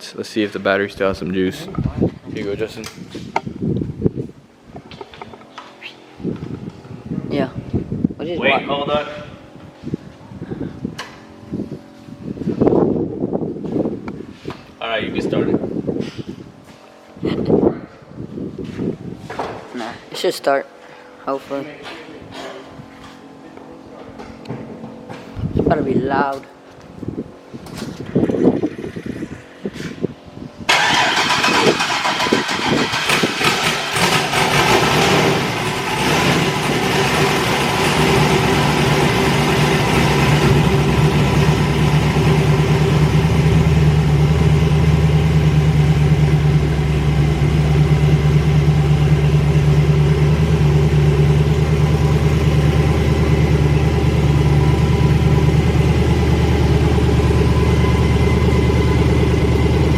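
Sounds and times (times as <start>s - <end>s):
car engine cranking and starting: 28.0s - 29.3s, 30.7s - 59.9s
loud engine idle: 30.7s - 59.9s.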